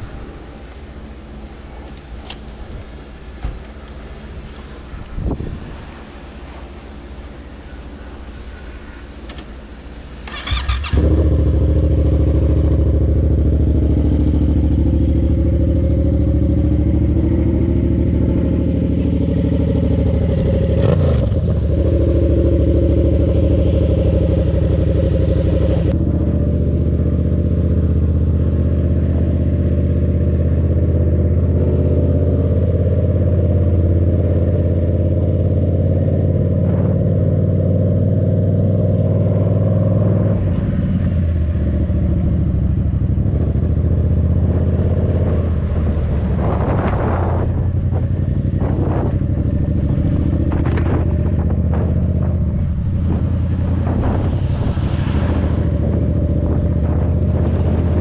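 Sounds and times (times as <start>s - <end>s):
motorcycle engine idling: 10.2s - 31.5s.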